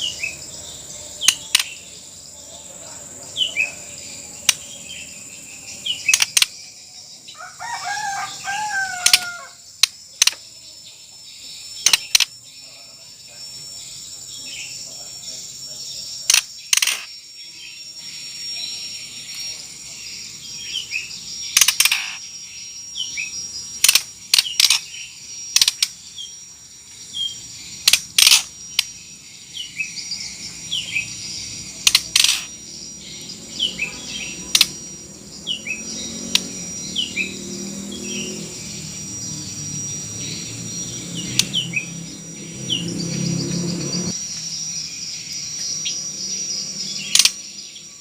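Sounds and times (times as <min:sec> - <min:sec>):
bird downward-slurred chirps: 0:00.0 - 0:48.0
bird sharp clicking calls: 0:01.2 - 0:01.8, 0:04.4 - 0:04.8, 0:05.9 - 0:06.6, 0:08.5 - 0:10.4, 0:11.8 - 0:12.3, 0:21.4 - 0:22.2, 0:23.8 - 0:26.0, 0:27.8 - 0:29.0, 0:31.8 - 0:32.5, 0:33.8 - 0:34.8, 0:47.0 - 0:47.4.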